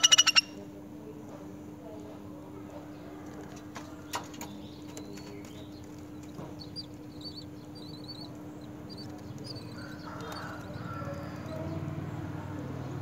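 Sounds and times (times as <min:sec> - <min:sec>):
high-pitched bird chirps: 0:00.0 - 0:00.6, 0:06.6 - 0:11.7
steady low hum: 0:00.0 - 0:13.0.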